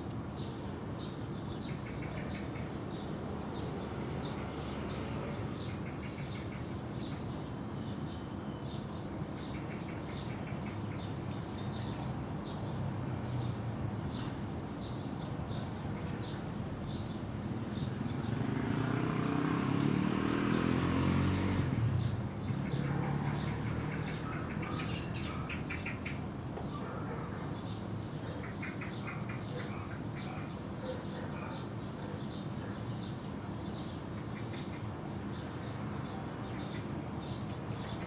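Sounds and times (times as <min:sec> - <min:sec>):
small birds chirping: 0:00.1 - 0:38.0
motor vehicle passing: 0:17.6 - 0:25.9.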